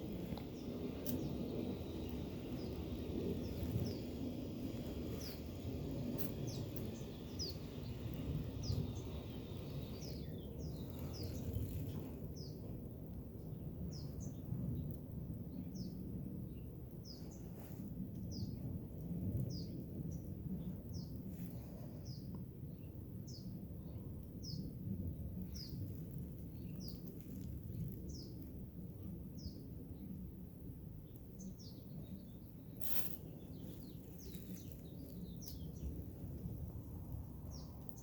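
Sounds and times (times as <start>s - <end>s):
small bird chirping: 0.0s - 12.6s, 25.4s - 27.5s, 31.0s - 36.4s
steady low rumbling noise: 0.0s - 38.0s.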